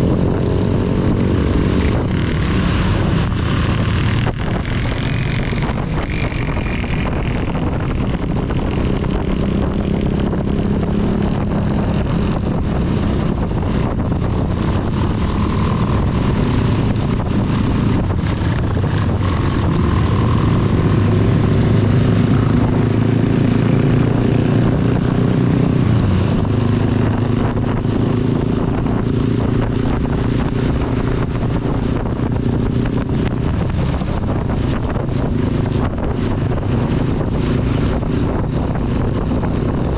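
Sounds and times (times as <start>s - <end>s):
motorcycle engine running: 0.0s - 39.9s
rain and wind hiss: 20.2s - 26.4s.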